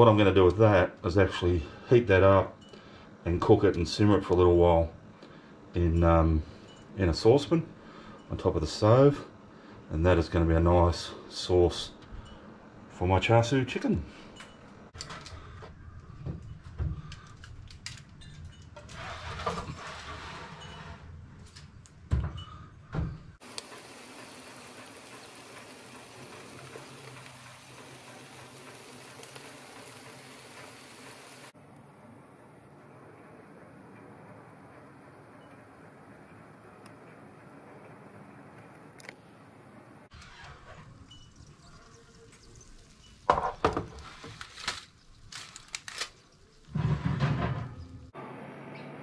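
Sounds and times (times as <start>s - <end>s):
sauce simmering in a saucepan: 23.4s - 31.5s
kitchen knocks and clatters: 43.3s - 44.0s, 46.7s - 48.0s.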